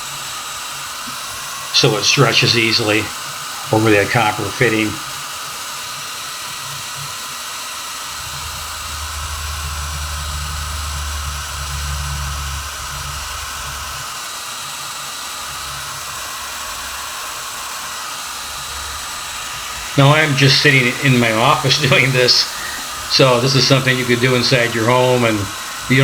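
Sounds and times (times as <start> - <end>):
hair dryer blowing: 0.0 - 26.0
low rumble: 8.1 - 14.0.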